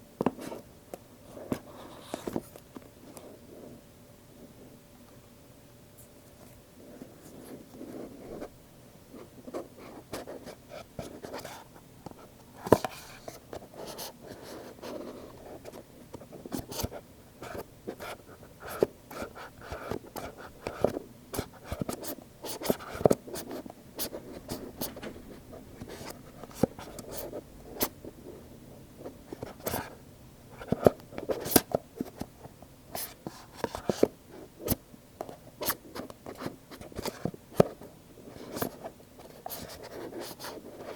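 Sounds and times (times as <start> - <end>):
scratching and rubbing: 12.6 - 30.0.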